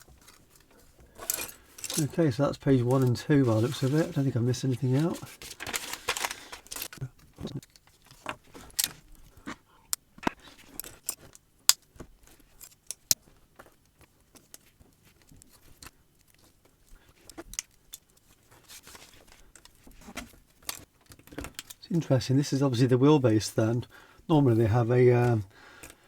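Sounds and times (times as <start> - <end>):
plastic bricks clicking: 5.4 - 7.0.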